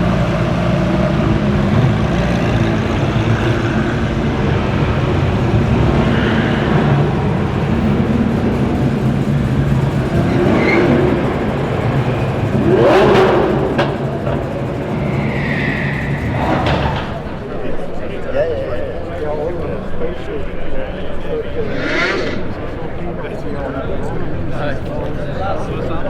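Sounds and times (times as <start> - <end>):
car engine idling and revving: 0.0 - 17.4
exhaust crack: 11.1 - 17.5.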